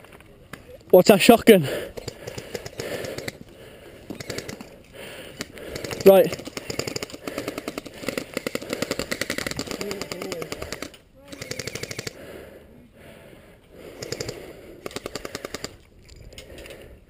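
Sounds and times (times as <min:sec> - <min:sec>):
airsoft guns firing full auto: 0:04.2 - 0:04.7, 0:05.3 - 0:12.2, 0:14.0 - 0:15.8.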